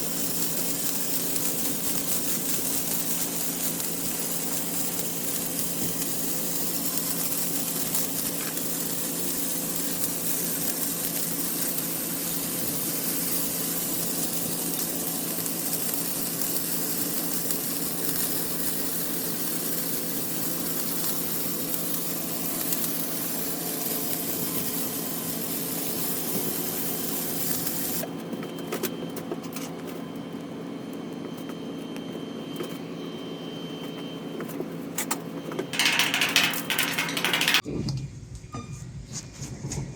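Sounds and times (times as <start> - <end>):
welding arc crackling hiss: 0.0 - 28.2, 35.8 - 37.6
welding machine hum: 0.0 - 33.0, 33.8 - 37.7.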